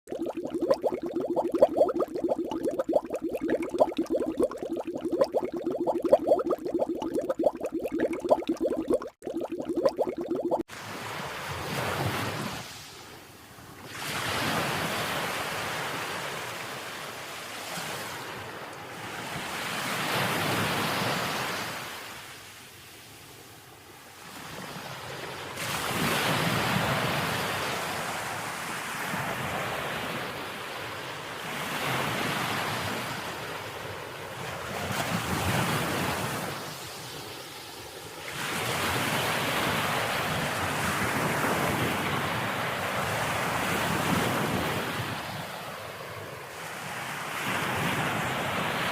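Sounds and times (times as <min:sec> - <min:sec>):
ocean waves washing in: 0:00.1 - 0:10.6.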